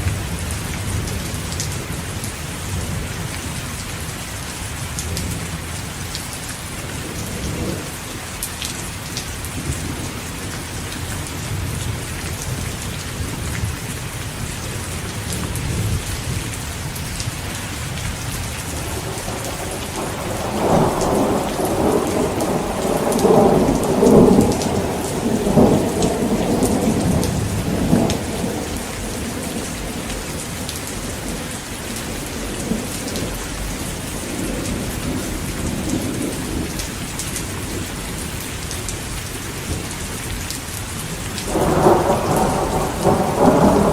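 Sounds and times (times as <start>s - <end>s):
heavy rain falling: 0.0s - 43.9s
thunder rumble: 18.6s - 36.8s, 41.4s - 43.9s.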